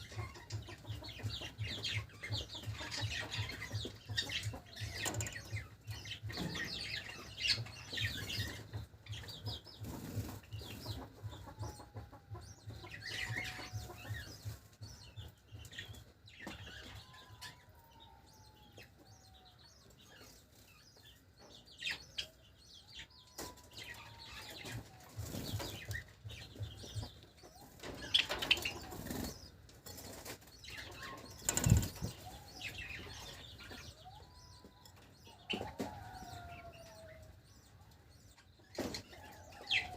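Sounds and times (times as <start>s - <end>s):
sparrows fluttering wings: 0.0s - 11.8s, 23.3s - 34.2s
sparrows chirping: 0.0s - 39.9s.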